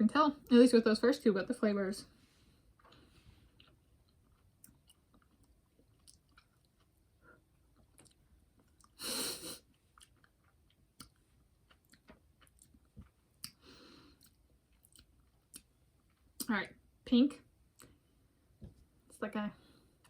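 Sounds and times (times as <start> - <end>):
chewing jelly bean candy: 2.8 - 16.5
soft mouth clicks: 11.0 - 11.2, 13.4 - 13.6.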